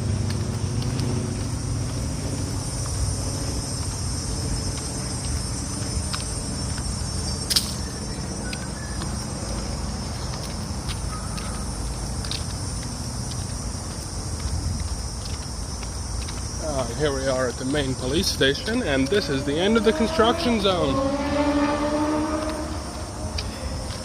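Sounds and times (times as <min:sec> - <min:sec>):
high-pitched insect chorus: 0:00.0 - 0:24.0
low rumble of street traffic: 0:00.0 - 0:24.0
sharp click: 0:07.5 - 0:07.8.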